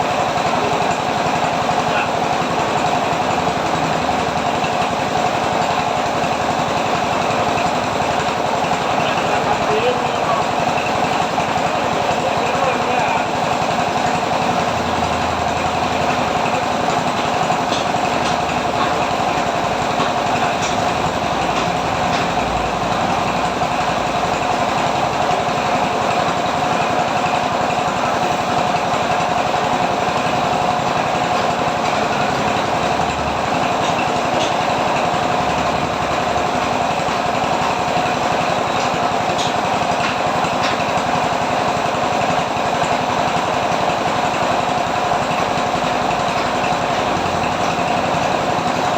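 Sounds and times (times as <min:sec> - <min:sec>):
machine whine and rattle: 0:00.0 - 0:48.9.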